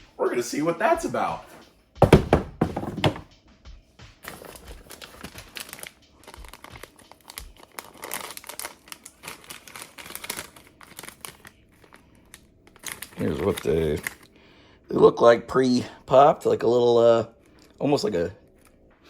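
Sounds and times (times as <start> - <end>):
packaging tearing: 4.2 - 14.3
snack packaging crinkling: 4.2 - 14.4.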